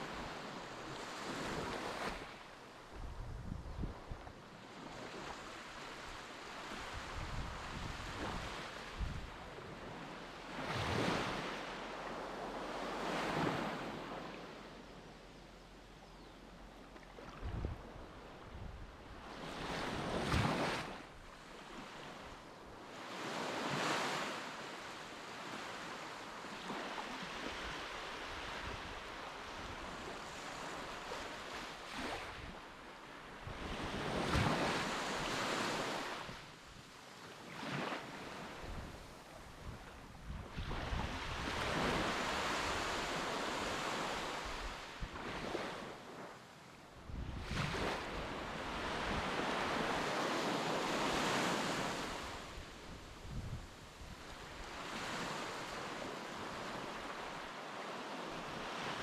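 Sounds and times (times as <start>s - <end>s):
wind gusting on microphone: 2.9s - 4.3s, 6.8s - 9.8s, 17.4s - 20.9s, 38.6s - 45.5s, 47.0s - 50.0s, 50.9s - 54.5s
surf washing on shore: 16.9s - 36.6s, 37.3s - 59.0s.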